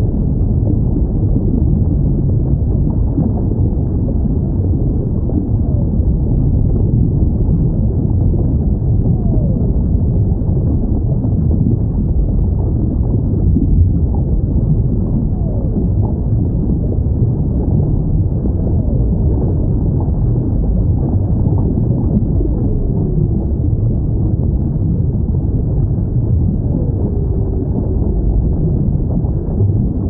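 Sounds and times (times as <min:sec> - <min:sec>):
deep underwater rumble: 0:00.0 - 0:30.0
faint whale calls: 0:26.4 - 0:30.0.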